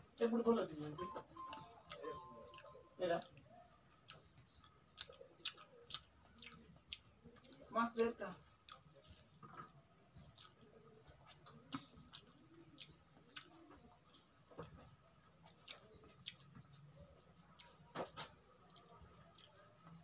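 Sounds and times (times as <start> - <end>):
person chewing with lip smacks: 1.4 - 3.4, 4.0 - 7.7, 8.5 - 20.0.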